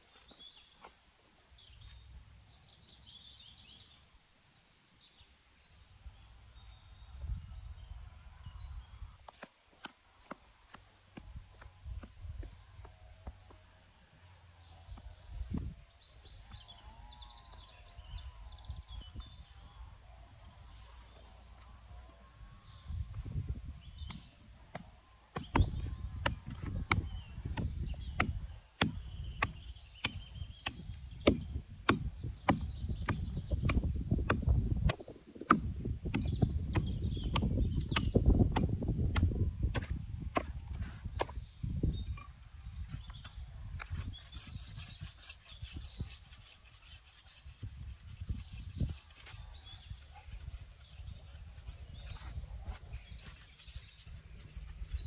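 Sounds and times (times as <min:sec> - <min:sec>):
wood rubbing and scraping: 0:43.8 - 0:55.0.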